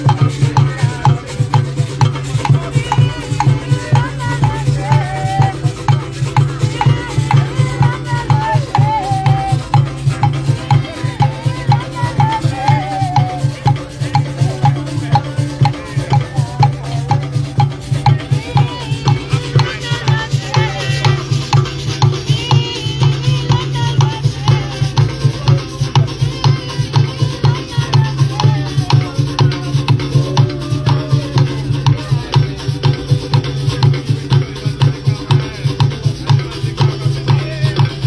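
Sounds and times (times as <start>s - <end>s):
shakers: 0.0s - 38.0s
steady drumbeat: 0.0s - 38.0s
wavering melodic line: 1.1s - 31.8s.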